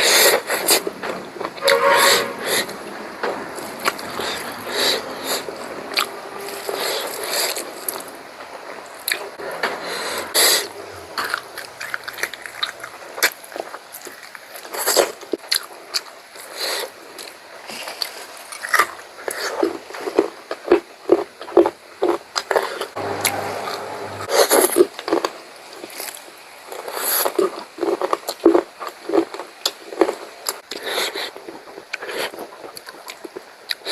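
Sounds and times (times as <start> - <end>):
person chewing food: 10.4 - 22.9.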